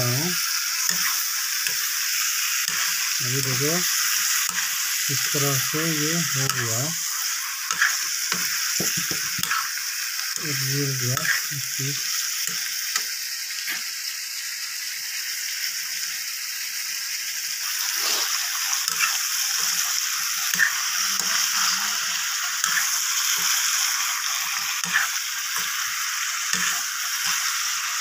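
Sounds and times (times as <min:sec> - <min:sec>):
food sizzling in a metal pan: 0:00.0 - 0:28.0
spoon scraping a pan: 0:00.4 - 0:10.6, 0:11.2 - 0:11.5, 0:17.8 - 0:28.0.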